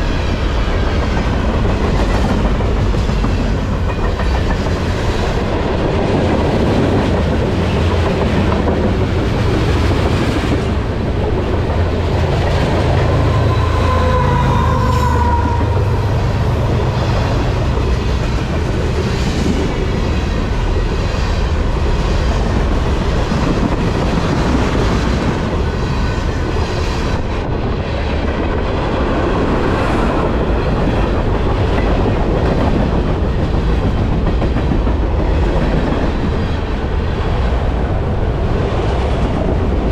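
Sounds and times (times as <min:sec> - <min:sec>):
freight train wheels rumbling: 0:00.0 - 0:39.9
train wheel squeal: 0:11.8 - 0:22.2.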